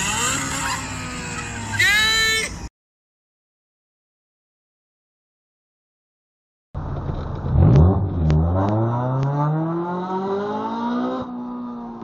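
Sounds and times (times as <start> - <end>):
car engine accelerating: 6.8 - 12.0.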